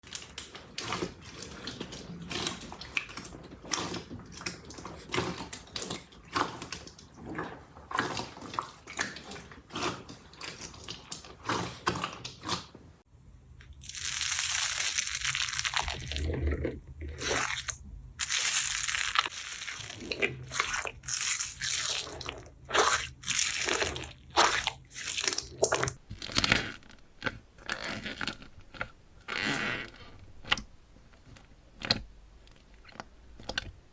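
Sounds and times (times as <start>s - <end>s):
slime crackling when squeezed: 13.8s - 16.3s, 17.2s - 26.0s.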